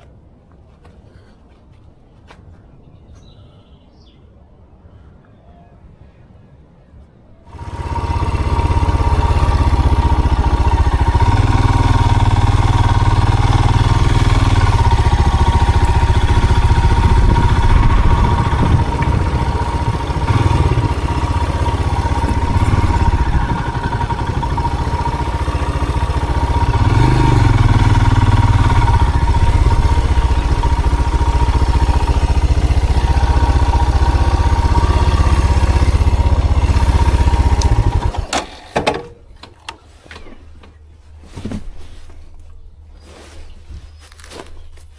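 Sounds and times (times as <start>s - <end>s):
vehicle engine revving: 7.5s - 38.3s.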